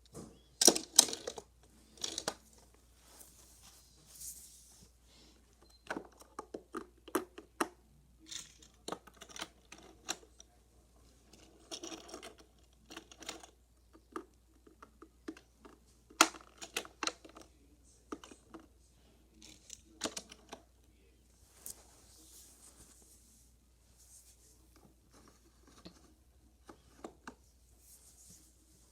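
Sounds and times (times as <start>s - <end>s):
toy cars rolling and scraping: 0.6s - 2.5s.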